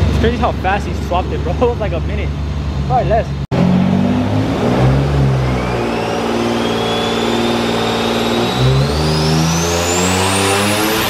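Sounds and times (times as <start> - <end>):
car engine under full load: 0.0 - 11.0
turbo whistle: 5.2 - 11.0.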